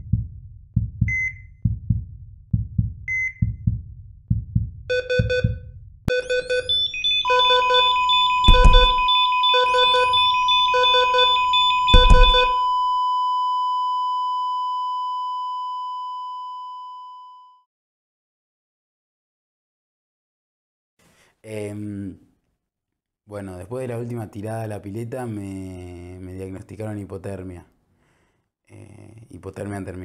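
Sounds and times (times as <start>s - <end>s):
heartbeat thumps: 0.0s - 6.8s, 7.9s - 12.6s
heart monitor beep: 1.0s - 1.5s, 3.1s - 3.6s, 4.9s - 17.2s
rapid alarm beeping: 4.9s - 5.5s, 6.1s - 12.7s
continuous flatline tone: 6.1s - 12.9s
heavy thuds: 8.5s - 9.1s, 11.9s - 12.6s.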